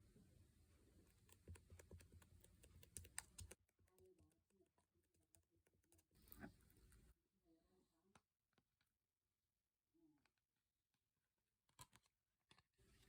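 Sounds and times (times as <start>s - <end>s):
faint rapid clicking and tapping: 1.1s - 7.2s.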